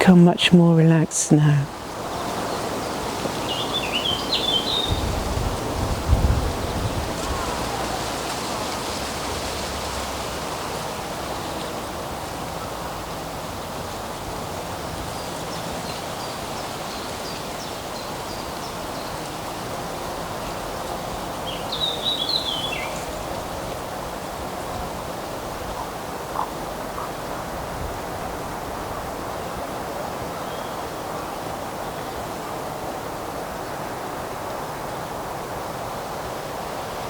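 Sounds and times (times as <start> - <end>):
falling bird phrase: 0.0 - 1.8
birds chirping: 0.0 - 5.1, 21.4 - 23.4
wind rushing through trees: 0.0 - 37.0.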